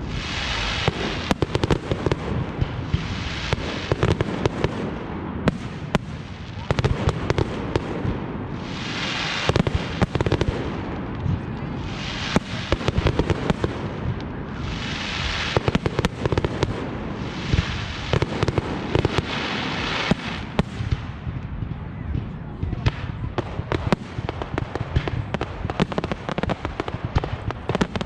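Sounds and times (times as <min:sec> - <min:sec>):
crackling firework hiss: 0:00.0 - 0:21.4
firework bangs: 0:00.0 - 0:28.0.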